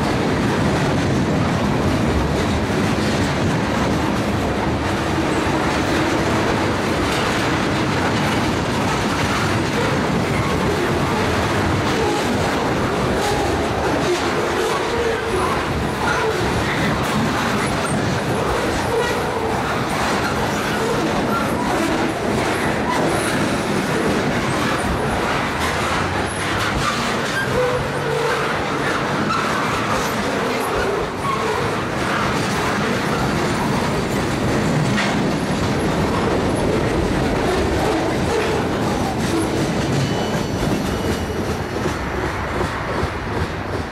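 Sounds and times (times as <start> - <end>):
freight train wheels clattering: 0.0 - 43.9.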